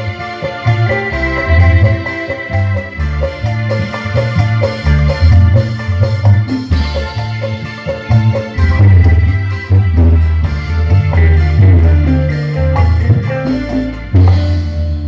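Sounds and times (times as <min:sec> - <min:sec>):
keyboard music over pa system: 0:00.0 - 0:15.0
heavy bass pulsing: 0:02.6 - 0:07.6, 0:08.3 - 0:15.0.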